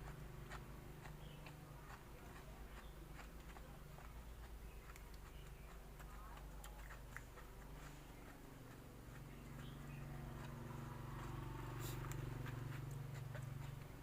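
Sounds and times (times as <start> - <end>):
chewing with mouth clicks: 0.0 - 14.0.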